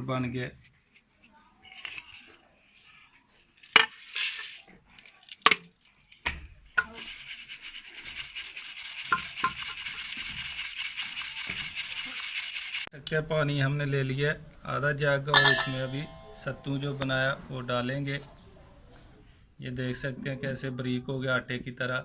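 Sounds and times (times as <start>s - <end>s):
flour rasping through a sieve: 6.7s - 12.9s.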